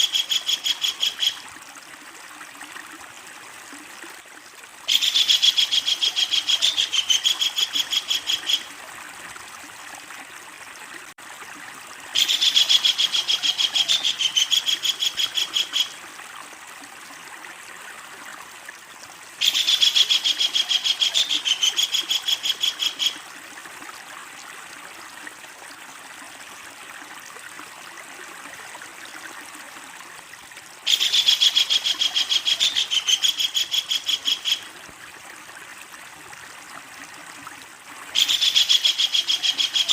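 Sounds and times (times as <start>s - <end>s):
kingfisher cackling call: 19.4s - 23.2s, 30.9s - 34.6s, 38.2s - 39.9s.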